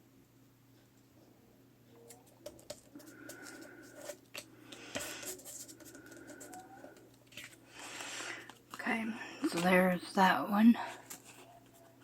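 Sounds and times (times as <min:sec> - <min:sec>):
paper rustling: 0:02.0 - 0:08.8, 0:10.8 - 0:12.0.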